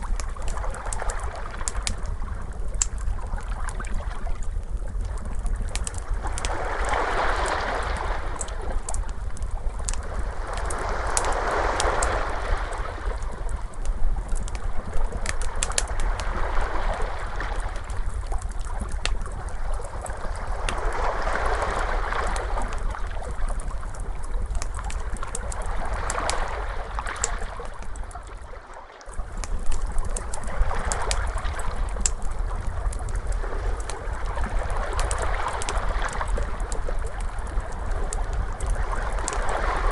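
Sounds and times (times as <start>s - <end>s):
wood fire crackling: 0.0s - 39.9s
ocean waves washing in: 6.2s - 9.0s, 9.9s - 13.4s, 14.7s - 18.2s, 19.5s - 23.3s, 33.4s - 39.9s.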